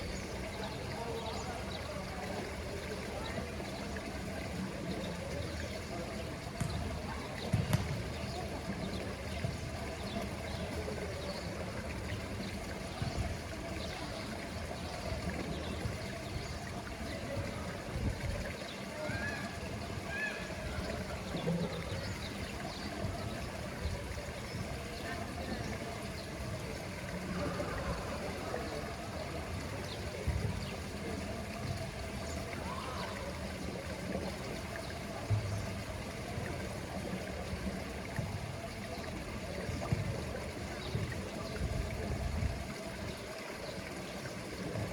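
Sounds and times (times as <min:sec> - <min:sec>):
pool water trickling: 0:00.0 - 0:44.9.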